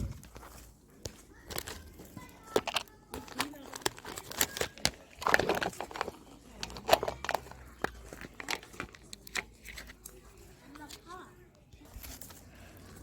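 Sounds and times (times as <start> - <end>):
plastic packaging crinkling: 1.3 - 11.1.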